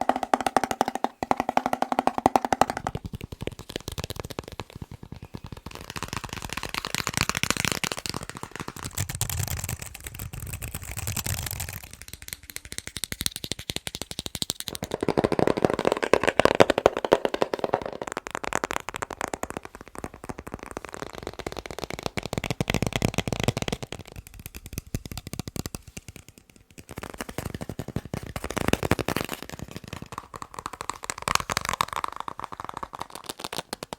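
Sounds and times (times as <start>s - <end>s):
fingernail tapping on objects: 0.0s - 5.6s.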